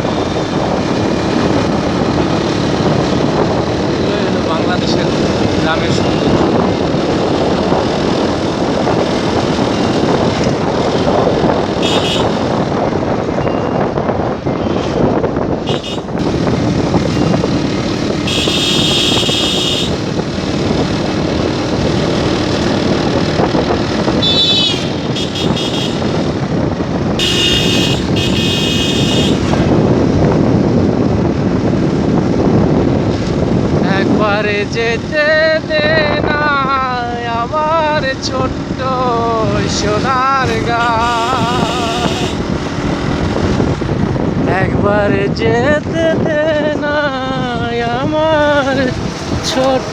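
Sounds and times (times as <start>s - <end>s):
motorcycle wind and road noise: 0.0s - 49.9s
vehicle horns honking: 11.8s - 12.6s, 14.6s - 17.4s, 18.0s - 20.1s, 24.2s - 26.3s, 27.2s - 29.8s, 40.4s - 42.5s.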